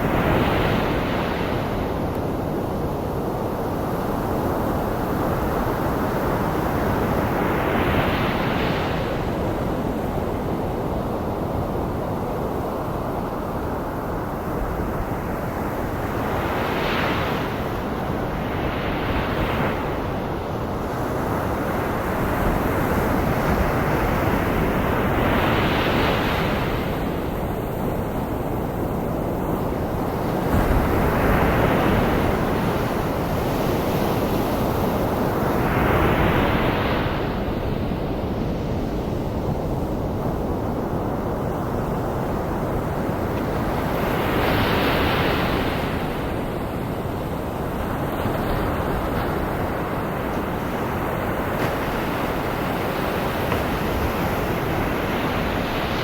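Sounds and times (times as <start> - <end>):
ocean waves breaking: 16.1 - 56.0.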